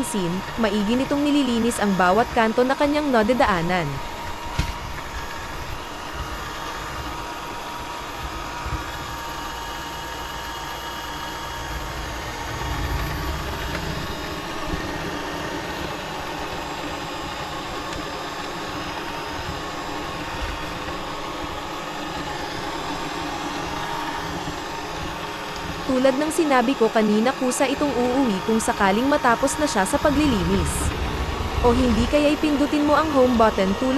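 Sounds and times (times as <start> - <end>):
robot vacuum cleaner humming: 0.0 - 33.9
low rumble: 11.3 - 16.0, 29.8 - 33.9.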